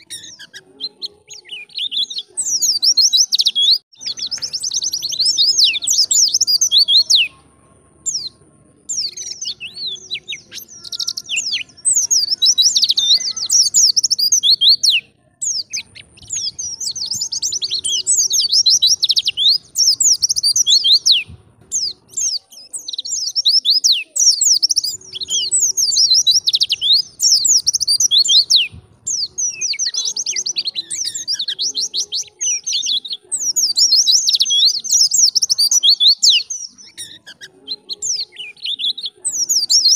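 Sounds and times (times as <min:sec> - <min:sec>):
bird twittering and trilling: 0:00.0 - 0:39.9.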